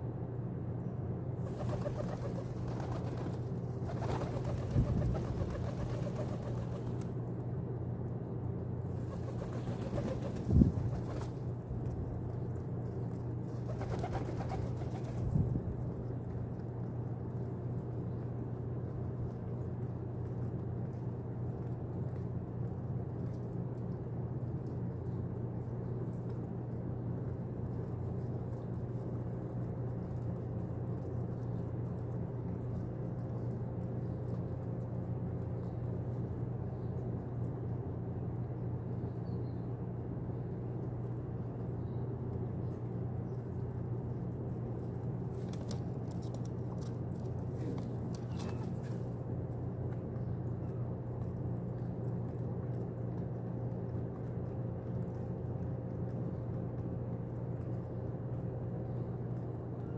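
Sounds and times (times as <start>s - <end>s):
steady low rumble: 0.0s - 59.9s.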